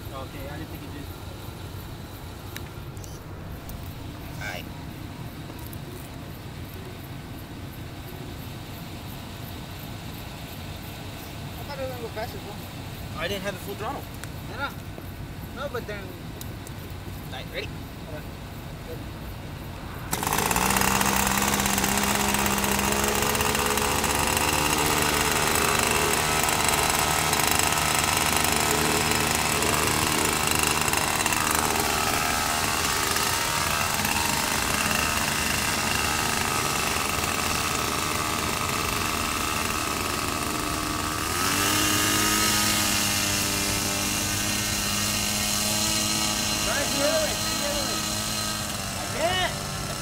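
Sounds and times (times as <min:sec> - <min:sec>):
airboat engine buzzing drone: 0:20.1 - 0:50.0.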